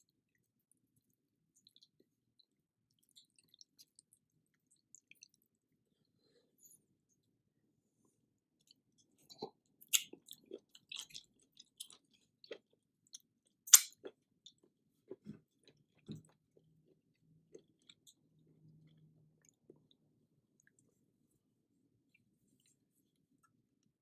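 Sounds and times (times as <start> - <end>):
chewing and mouth noises: 1.0 - 2.1, 2.9 - 5.5, 8.6 - 20.0.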